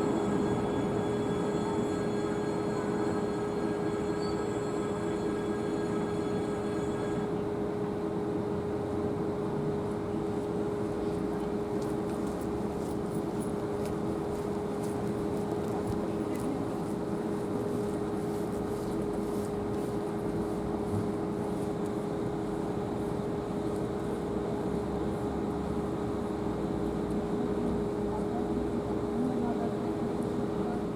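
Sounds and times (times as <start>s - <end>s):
mid-pitched whine: 0.0s - 8.1s
electric train humming: 0.0s - 8.7s.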